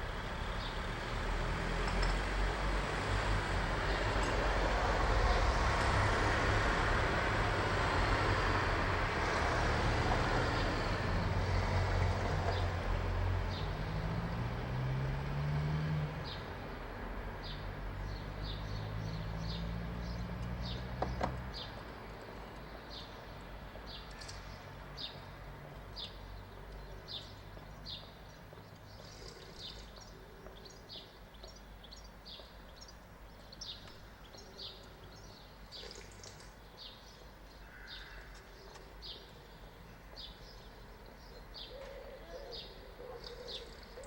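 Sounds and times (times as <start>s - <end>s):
bird chirping: 25.9s - 44.0s.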